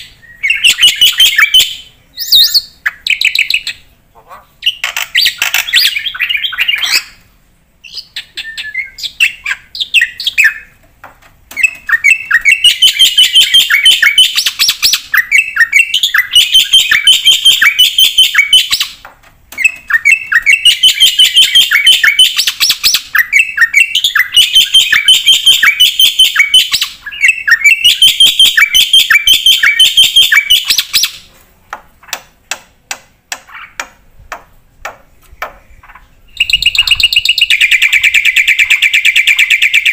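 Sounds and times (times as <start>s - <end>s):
sharp bird clicks: 4.7s - 7.1s
starling chattering song: 35.6s - 39.9s.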